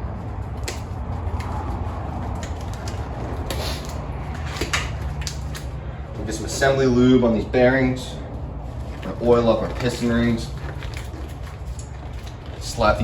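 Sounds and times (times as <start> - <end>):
steady low hum: 0.0 - 13.0
clicks and knocks of engine parts: 0.5 - 5.9, 8.8 - 13.0.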